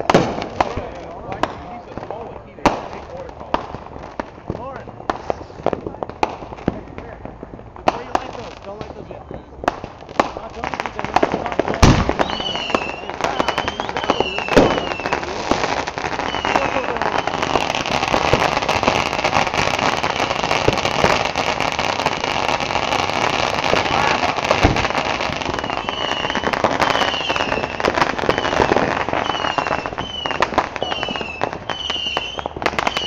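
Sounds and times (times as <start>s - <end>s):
fireworks bangs: 0.0s - 33.0s
fireworks crackling and popping: 0.0s - 33.0s
short falling whistles: 12.1s - 15.1s.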